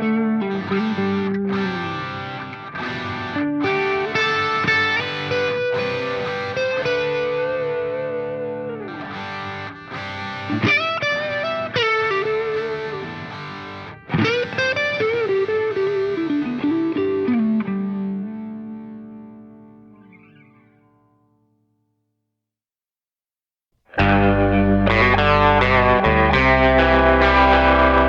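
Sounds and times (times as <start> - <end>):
distorted electric guitar lead: 0.0 - 20.6, 23.9 - 28.0.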